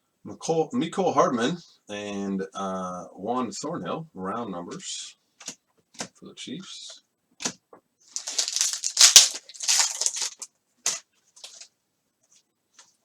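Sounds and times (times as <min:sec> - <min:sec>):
foil wrapper tearing and crinkling: 0:08.2 - 0:11.6.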